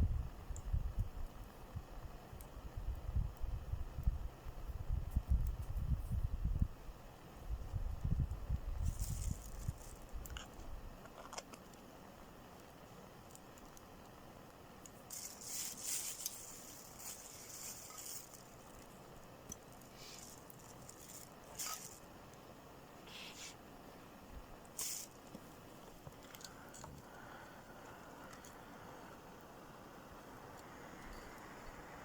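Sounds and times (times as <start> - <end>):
rustling and scraping: 8.8 - 11.8, 15.1 - 22.1, 24.7 - 27.1
short hissy bursts: 19.8 - 22.0, 23.0 - 23.7, 24.7 - 25.3.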